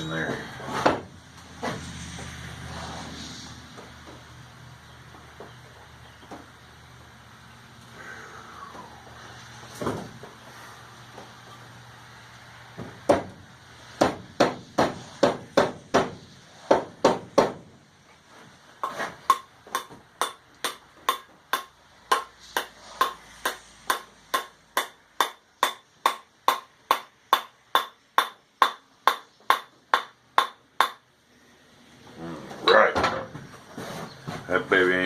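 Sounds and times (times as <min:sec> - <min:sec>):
hammer blows ringing on wedge: 0:19.3 - 0:31.0.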